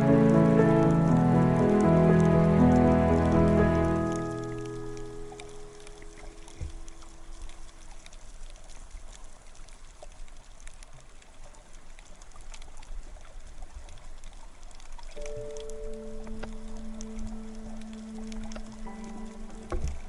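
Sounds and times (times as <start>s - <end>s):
background music: 0.0s - 6.8s, 15.2s - 20.0s
small underwater clicks: 4.1s - 20.0s.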